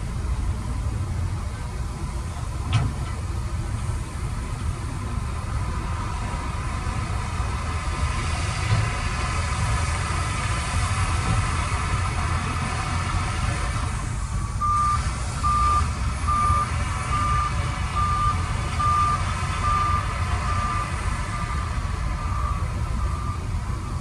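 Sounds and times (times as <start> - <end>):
engine running low: 0.0 - 24.0
reversing alarm beeping: 14.4 - 24.0.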